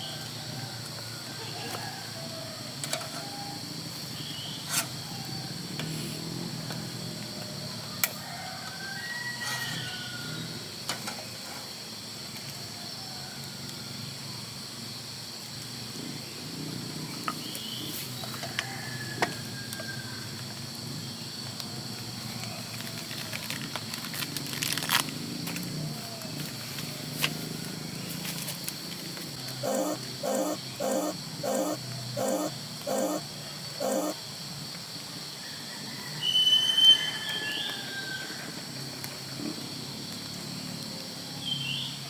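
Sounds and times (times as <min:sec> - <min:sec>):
sharp clicks: 0:29.5 - 0:33.2, 0:33.8 - 0:34.2.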